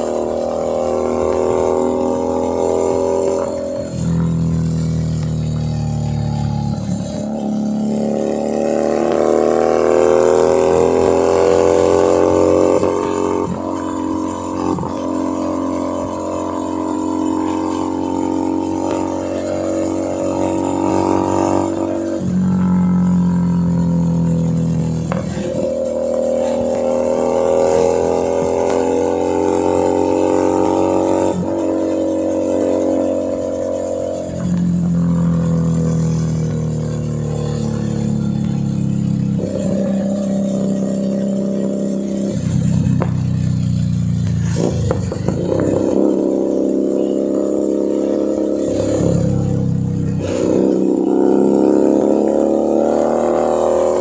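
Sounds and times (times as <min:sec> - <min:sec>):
motorcycle engine shifting gears: 0:00.0 - 0:54.0.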